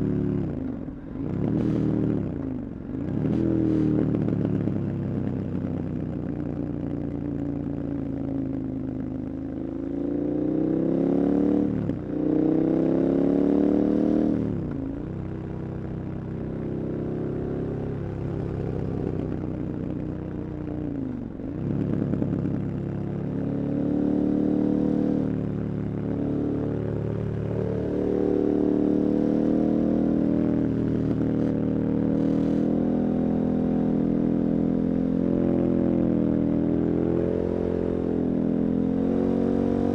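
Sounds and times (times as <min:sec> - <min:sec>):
motorcycle engine accelerating: 0:10.2 - 0:39.9.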